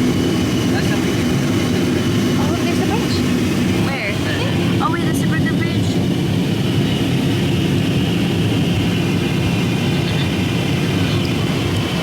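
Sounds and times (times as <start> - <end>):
jet cabin engine and airflow drone: 0.0 - 12.0.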